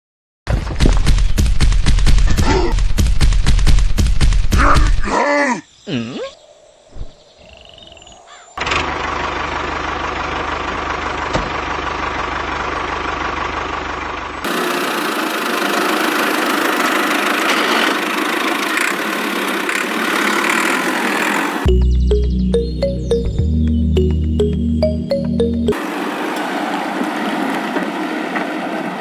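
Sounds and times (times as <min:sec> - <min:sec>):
small motor machine running: 0:14.4 - 0:21.7.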